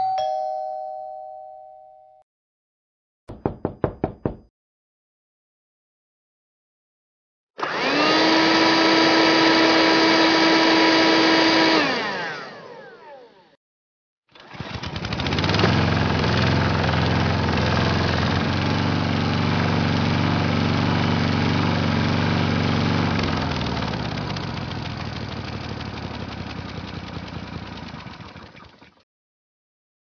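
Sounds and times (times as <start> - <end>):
engine running: 14.4 - 29.0.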